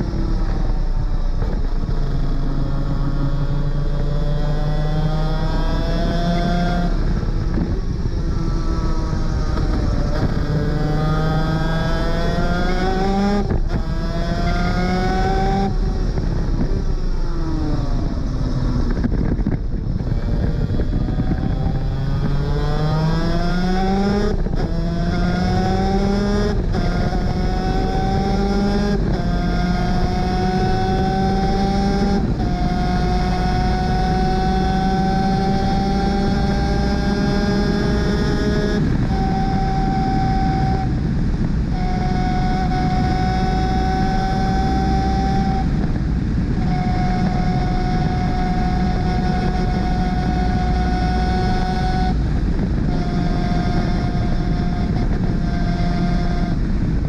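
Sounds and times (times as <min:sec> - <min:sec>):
kart engine revving through gears: 0:00.0 - 0:57.0.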